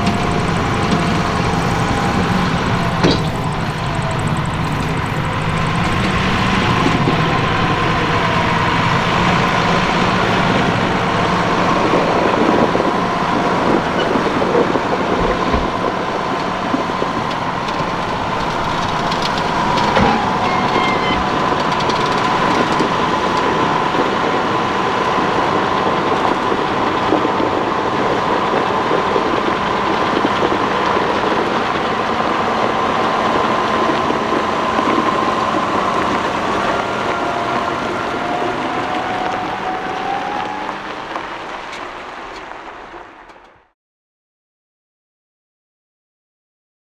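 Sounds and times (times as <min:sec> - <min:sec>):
high whine: 0:00.0 - 0:27.6
tractor engine running: 0:00.0 - 0:43.4
short thump: 0:15.1 - 0:16.0.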